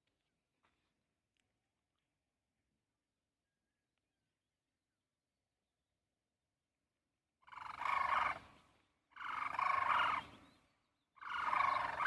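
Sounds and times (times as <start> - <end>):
cranes calling: 7.4 - 10.5, 11.2 - 12.0.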